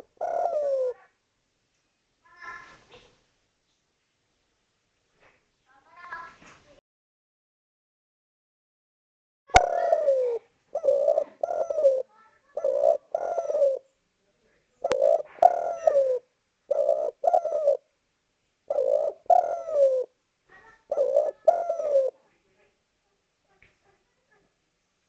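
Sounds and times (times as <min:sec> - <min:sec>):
dove cooing: 0:00.0 - 0:01.0, 0:09.5 - 0:13.9, 0:14.8 - 0:17.8, 0:18.7 - 0:22.2.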